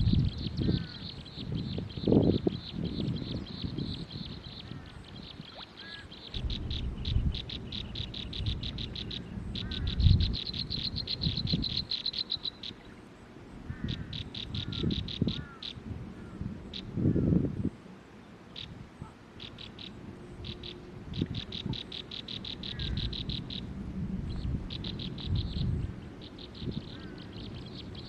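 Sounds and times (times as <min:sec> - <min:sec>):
low rumbling bursts: 0:06.4 - 0:11.8.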